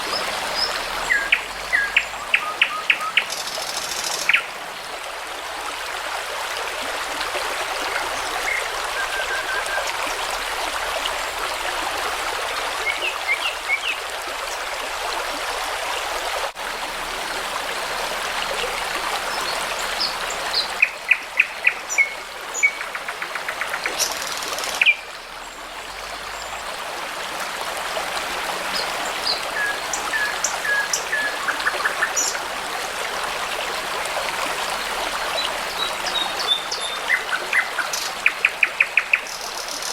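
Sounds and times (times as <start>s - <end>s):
babbling brook: 0.0s - 39.9s.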